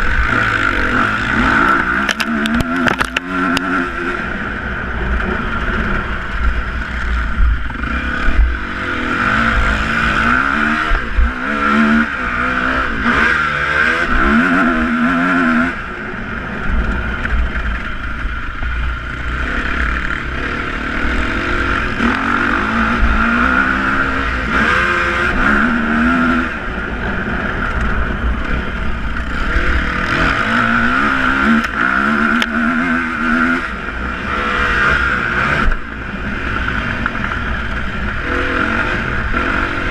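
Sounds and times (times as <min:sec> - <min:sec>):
motocross engines revving: 0:00.0 - 0:39.9
steady engine drone: 0:00.0 - 0:39.9.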